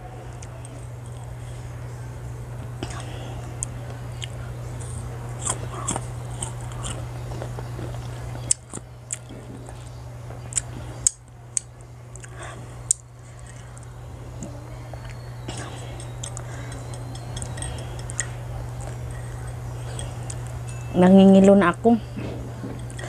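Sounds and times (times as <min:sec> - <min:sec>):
steady low hum: 0:00.0 - 0:23.0
crunching mango slices: 0:03.6 - 0:20.6.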